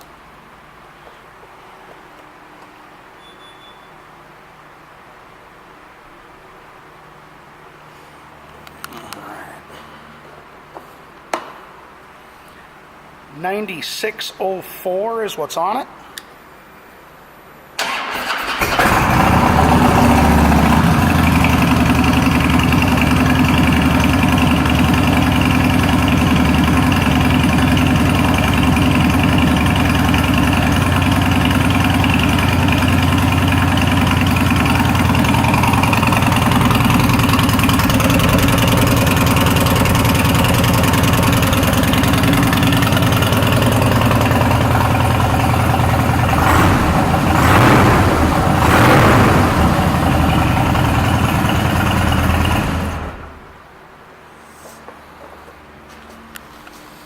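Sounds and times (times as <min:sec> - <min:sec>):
motorcycle engine starting and idling: 0:17.8 - 0:53.6.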